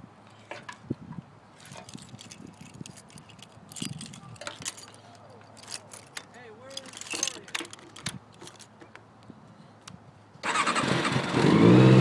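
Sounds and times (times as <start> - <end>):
small clicks and rattles: 1.6 - 9.0.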